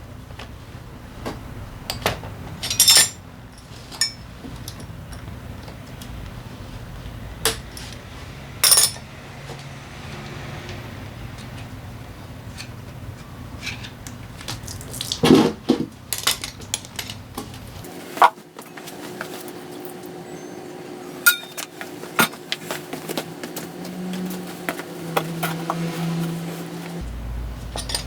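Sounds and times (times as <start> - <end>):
low background hum: 0.0 - 28.0
metal tools clinking: 1.9 - 5.3, 8.6 - 9.1, 16.1 - 17.5, 21.3 - 22.4, 27.6 - 28.0.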